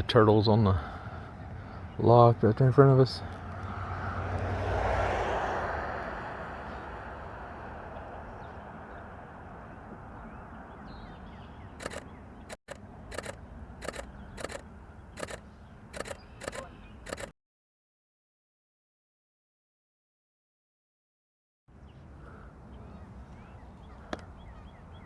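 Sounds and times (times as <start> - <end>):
camera shutter clicks: 11.8 - 14.6, 15.2 - 15.4, 16.0 - 17.3.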